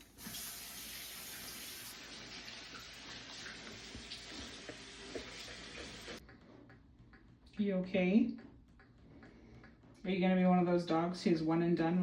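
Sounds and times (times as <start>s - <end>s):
water running from a tap: 0.0s - 6.2s.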